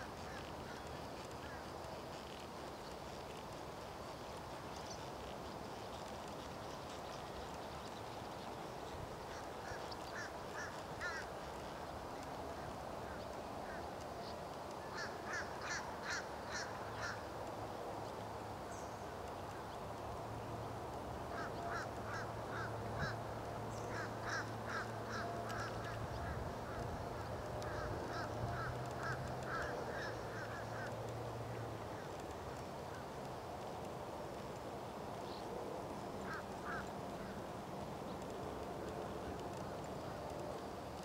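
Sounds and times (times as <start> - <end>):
birds calling: 9.2 - 13.9, 21.3 - 33.1, 36.2 - 37.4.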